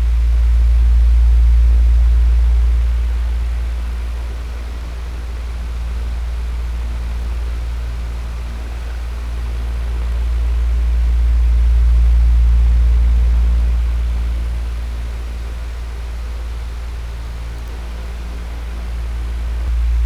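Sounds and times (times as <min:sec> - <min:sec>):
electric fan running: 0:00.0 - 0:20.0.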